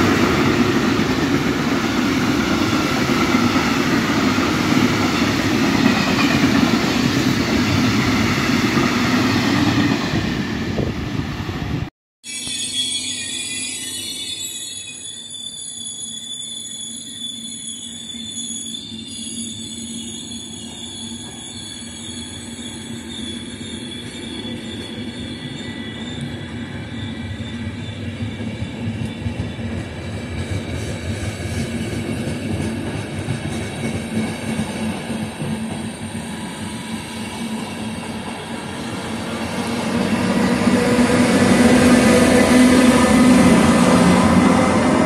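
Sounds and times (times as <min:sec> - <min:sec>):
train wheels rumbling on rails: 0:00.0 - 0:11.9, 0:20.6 - 0:45.0
wheel squeal: 0:12.2 - 0:29.9.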